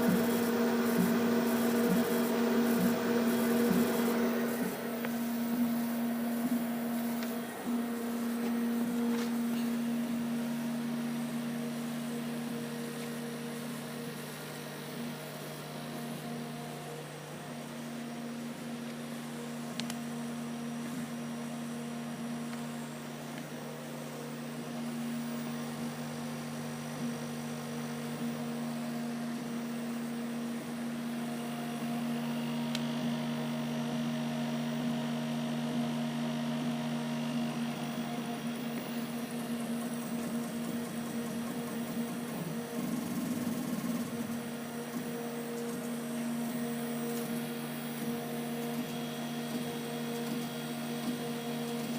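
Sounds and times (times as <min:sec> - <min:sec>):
laser cutter humming: 0:00.0 - 0:51.9.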